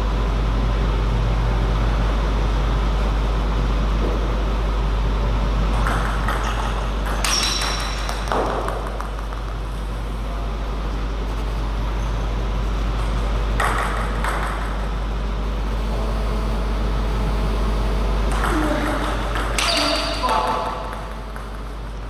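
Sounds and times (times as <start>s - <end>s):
steady low hum: 0.0s - 22.0s
table tennis ball pings: 5.8s - 9.6s, 18.2s - 22.0s.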